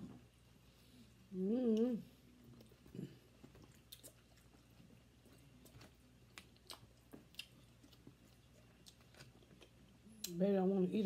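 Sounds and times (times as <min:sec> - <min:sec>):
people chewing: 0:01.8 - 0:10.3.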